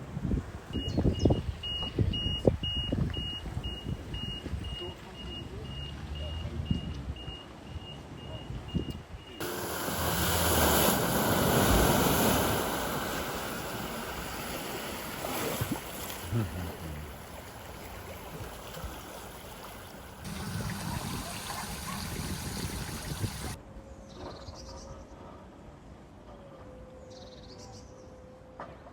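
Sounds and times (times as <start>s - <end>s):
water rushing and splashing: 9.4s - 23.6s.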